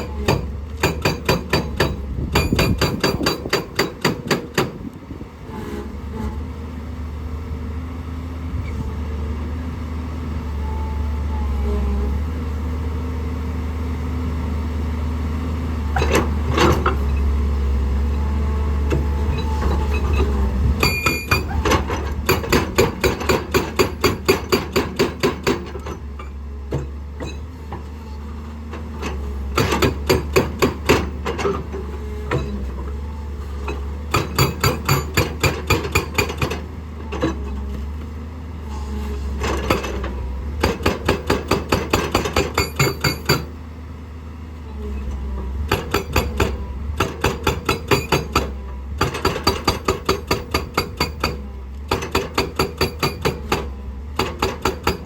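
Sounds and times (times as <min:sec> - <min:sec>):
hydraulic breaker pounding rock: 0:00.0 - 0:06.4, 0:15.9 - 0:37.9, 0:39.0 - 0:43.6, 0:45.1 - 0:55.0.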